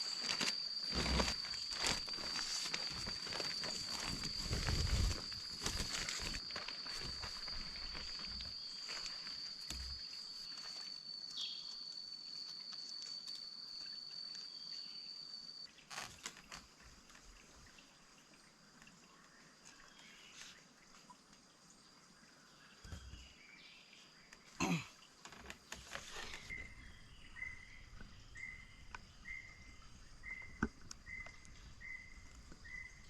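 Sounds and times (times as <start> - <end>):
insect high-pitched call: 0.0 - 16.1, 24.6 - 33.0.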